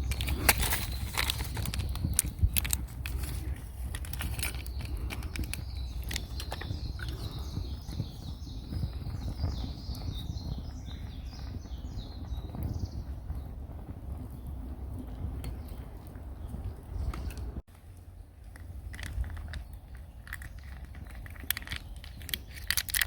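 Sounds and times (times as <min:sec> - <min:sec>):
low outdoor rumble: 0:00.0 - 0:23.0
sharp clicks and clinks: 0:18.6 - 0:23.0.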